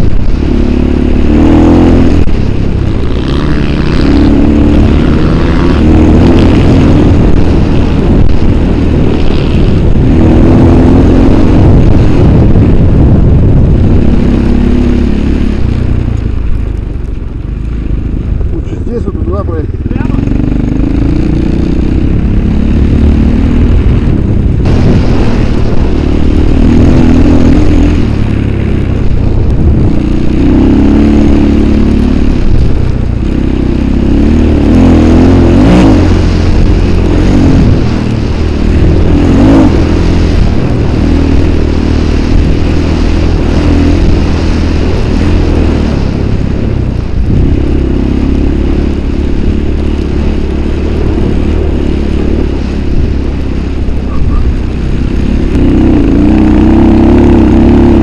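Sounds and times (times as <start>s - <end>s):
vehicle engine running under load: 0.0s - 58.0s.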